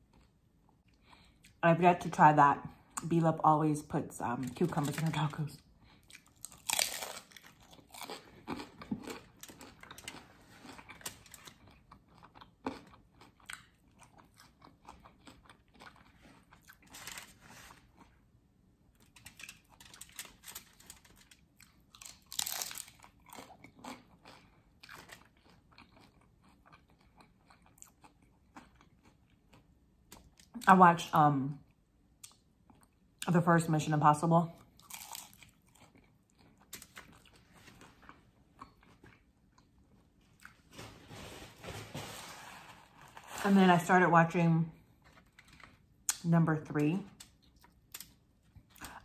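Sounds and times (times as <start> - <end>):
crunchy bites and chewing: 5.9 - 18.1, 19.0 - 30.6, 34.7 - 40.6.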